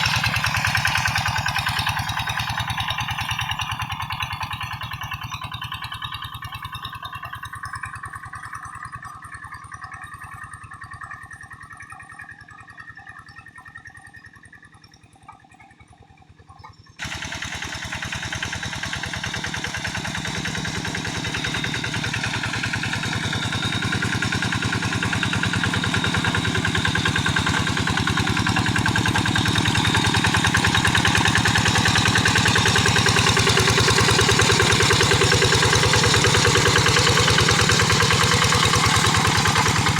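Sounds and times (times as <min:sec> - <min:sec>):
diesel engine running: 0:00.0 - 0:06.5, 0:17.0 - 0:39.9.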